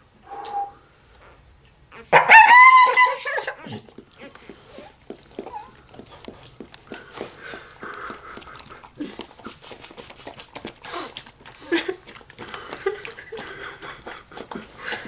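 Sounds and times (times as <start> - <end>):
dog whimpering: 0.3 - 5.8
wet clicks and smacks: 3.7 - 15.0.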